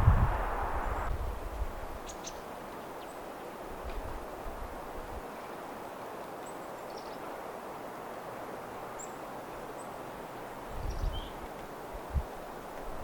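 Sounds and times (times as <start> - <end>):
soft outdoor rush: 0.0 - 13.0
faint bird chirps: 2.0 - 3.2, 10.8 - 11.4.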